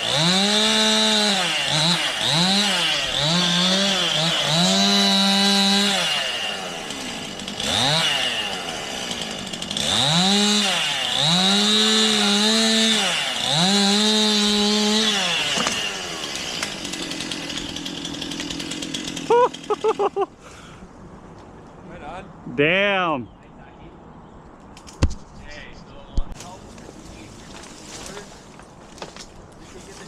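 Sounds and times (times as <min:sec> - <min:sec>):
chainsaw idling: 0:00.0 - 0:20.2
chainsaw revving and cutting: 0:00.0 - 0:20.3.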